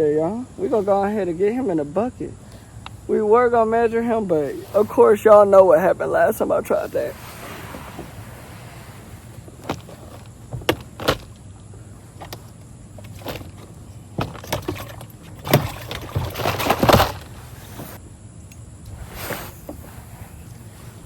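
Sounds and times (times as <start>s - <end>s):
thumps and rattles of gear: 7.2s - 18.0s.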